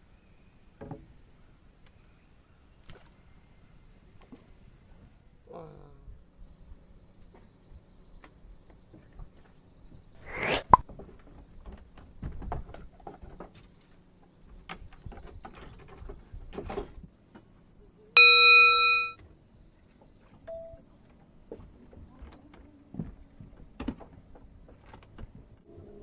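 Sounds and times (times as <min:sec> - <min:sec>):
bell-like ding: 0:18.2 - 0:19.2.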